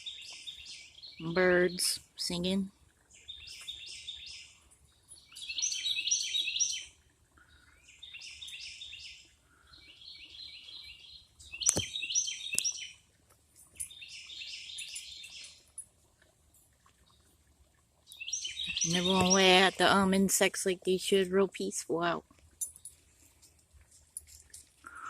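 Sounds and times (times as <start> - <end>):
songbird high chirping: 0.0 - 13.0, 13.6 - 15.8, 18.1 - 20.1.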